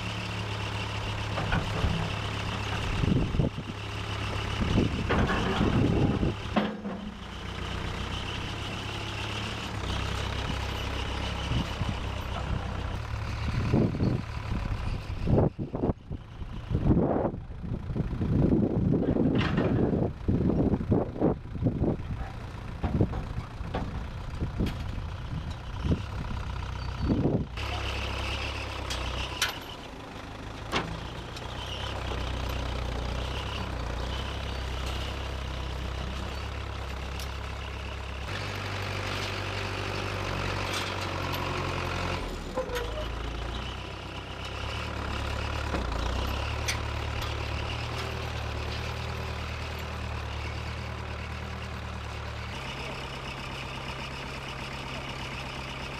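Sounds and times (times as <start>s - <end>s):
backhoe engine running: 0.0s - 55.9s
low knocks and bumps: 21.9s - 25.7s.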